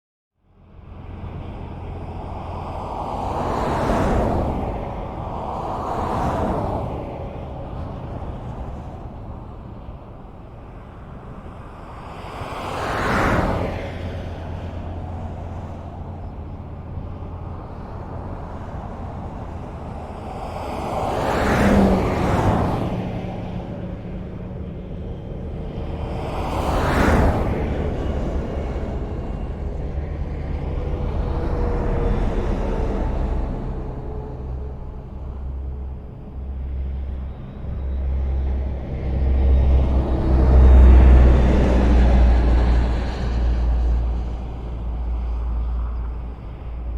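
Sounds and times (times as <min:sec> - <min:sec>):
highway traffic rumble: 0:00.4 - 0:46.9
vehicle passing close: 0:11.2 - 0:46.9.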